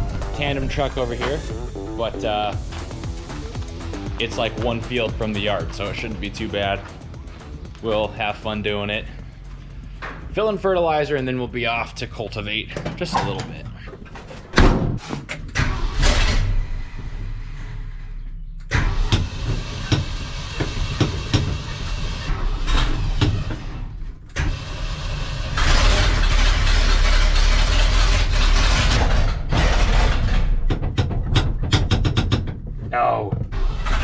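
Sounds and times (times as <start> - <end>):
truck engine driving: 0.0 - 34.0
sharp clicks and clunks: 25.6 - 34.0.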